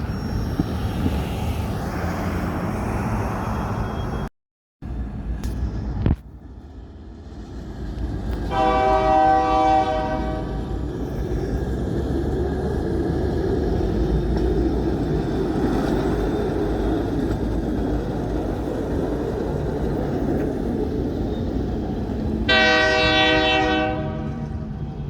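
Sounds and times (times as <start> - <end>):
train rumbling by: 0.0 - 25.0
locomotive horn blast: 8.5 - 10.6, 22.5 - 24.8.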